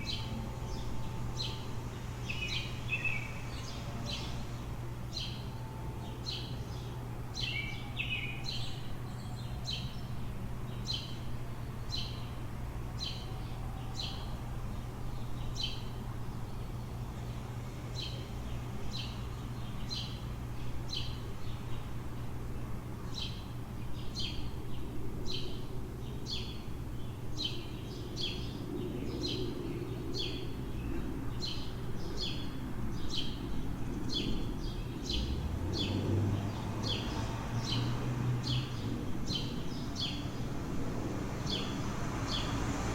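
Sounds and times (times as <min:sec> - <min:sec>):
bird chirping: 0:00.0 - 0:04.5
low city hum: 0:00.0 - 0:42.9.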